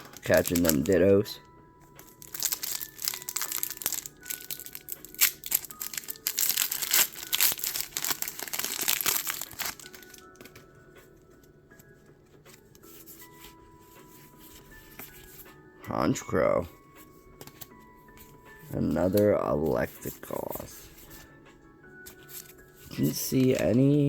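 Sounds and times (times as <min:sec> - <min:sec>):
wrapper crinkling and tearing: 0:00.0 - 0:01.2, 0:02.0 - 0:10.6
faint background music: 0:00.0 - 0:24.0.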